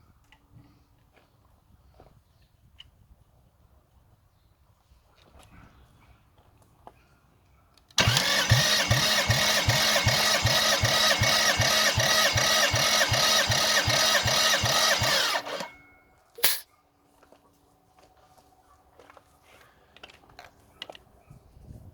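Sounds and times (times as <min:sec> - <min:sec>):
starter motor cranking engine: 0:08.0 - 0:15.8.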